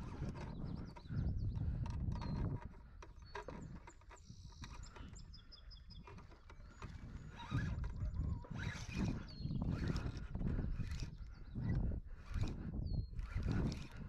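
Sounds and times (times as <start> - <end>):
wind buffeting microphone: 0.0 - 14.0
bird chirping: 3.1 - 9.9.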